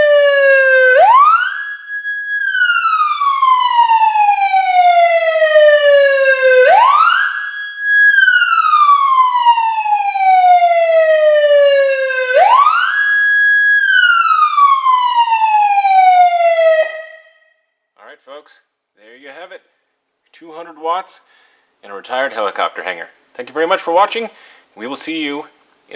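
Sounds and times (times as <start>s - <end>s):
electronic police siren wailing: 0.0s - 17.7s.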